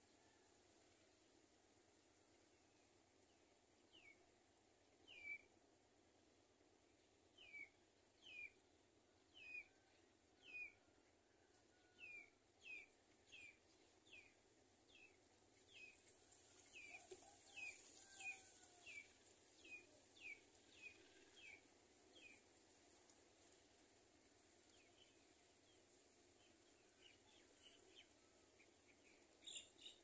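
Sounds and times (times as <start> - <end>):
small bird chirping: 28.9 - 30.0.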